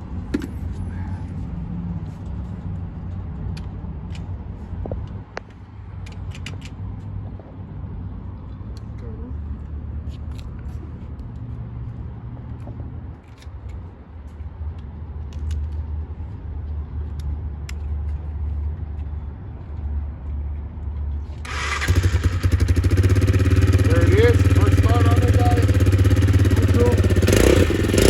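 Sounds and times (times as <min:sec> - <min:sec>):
motorcycle engine rumbling: 0:21.4 - 0:28.0.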